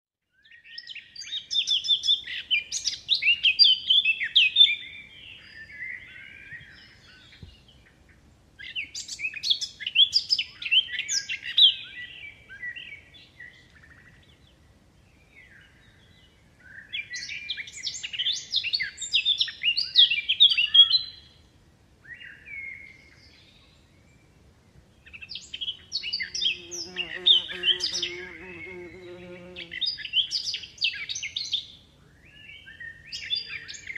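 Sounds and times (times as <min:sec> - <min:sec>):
bird chirping: 0:25.0 - 0:33.9.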